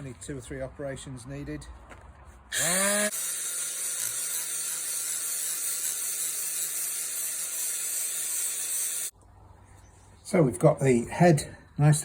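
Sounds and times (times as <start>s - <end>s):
angle grinder polishing metal: 2.5s - 9.1s.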